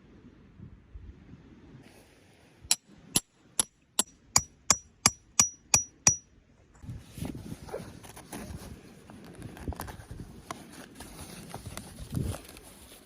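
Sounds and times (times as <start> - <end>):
hammer striking metal tent peg: 2.7 - 6.2
soft rustling: 7.0 - 13.0.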